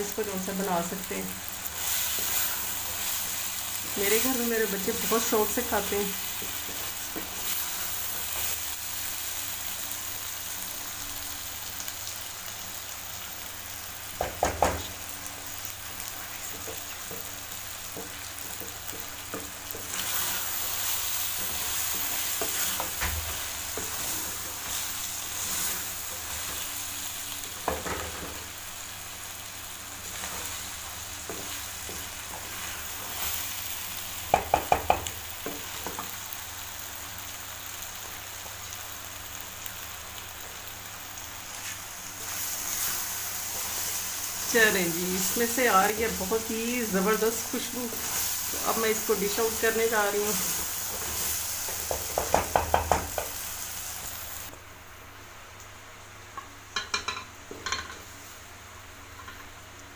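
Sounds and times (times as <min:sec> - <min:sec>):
curry sizzling in a pan: 0:00.0 - 0:59.9
knocks on the pan: 0:14.2 - 0:14.9, 0:34.3 - 0:35.1, 0:51.9 - 0:53.3
wooden spatula stirring: 0:16.5 - 0:26.8, 0:30.0 - 0:33.6.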